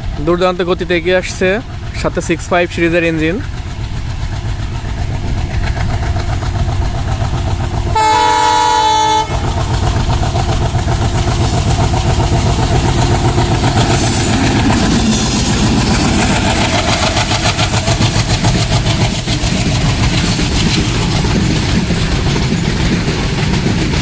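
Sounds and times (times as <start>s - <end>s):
diesel locomotive rumbling past: 0.0s - 24.0s
train horn: 7.9s - 9.4s.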